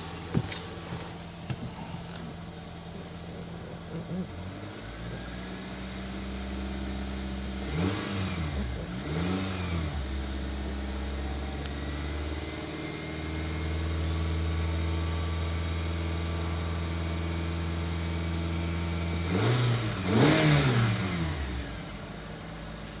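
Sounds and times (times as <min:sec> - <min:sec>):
car engine idling and revving: 0:00.0 - 0:23.0.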